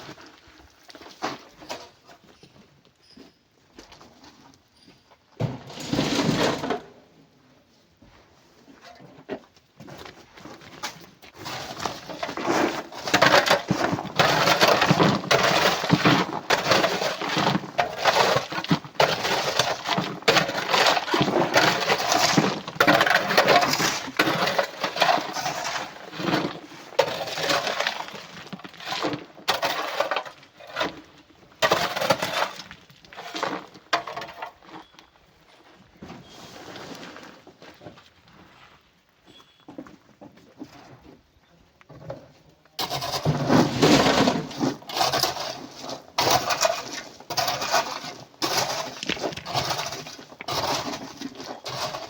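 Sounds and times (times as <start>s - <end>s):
rocks clattering together: 10.8s - 34.9s, 42.8s - 52.0s.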